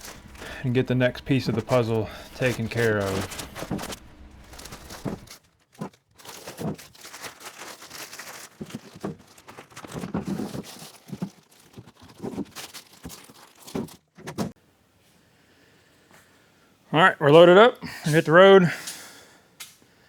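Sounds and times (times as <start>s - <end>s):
heavy engine parts knocking and scraping: 0.0s - 6.9s.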